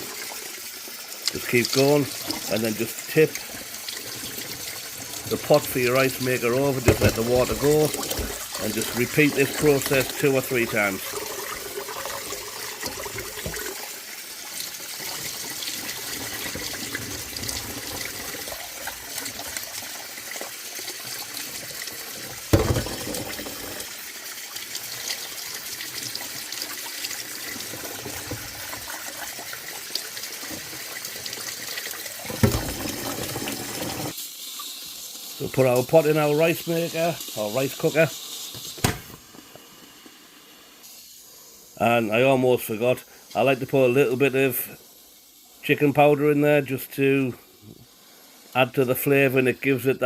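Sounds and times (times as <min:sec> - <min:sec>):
tap water splashing into pot: 0:03.3 - 0:13.9, 0:21.5 - 0:23.8, 0:25.6 - 0:34.8.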